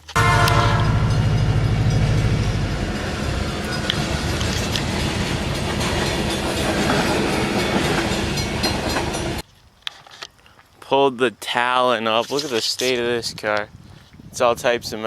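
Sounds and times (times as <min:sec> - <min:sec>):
train wagons rumbling and clattering: 0:00.0 - 0:09.4
train horn: 0:00.1 - 0:08.6.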